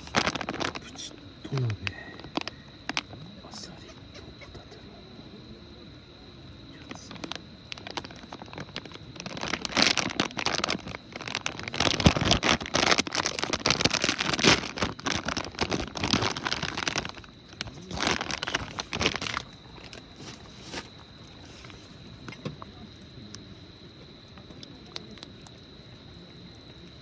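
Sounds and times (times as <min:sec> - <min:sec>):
plastic packaging crinkling: 0:00.0 - 0:01.0, 0:02.0 - 0:03.2, 0:06.8 - 0:21.8.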